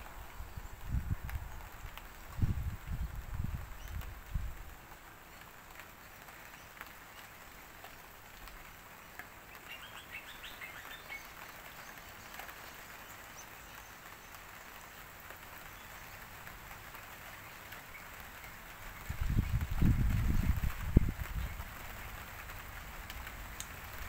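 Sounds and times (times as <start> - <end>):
wind: 0.0 - 24.0
bird chirping: 9.5 - 15.0.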